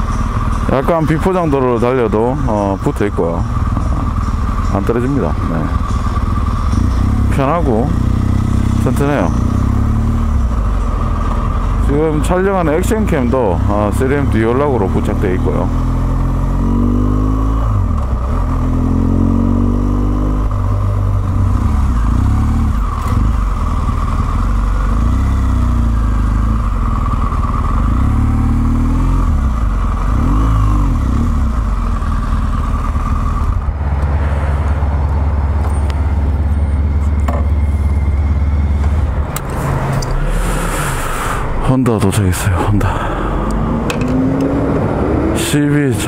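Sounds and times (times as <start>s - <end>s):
motorcycle engine revving: 0.0s - 41.7s, 42.4s - 46.0s.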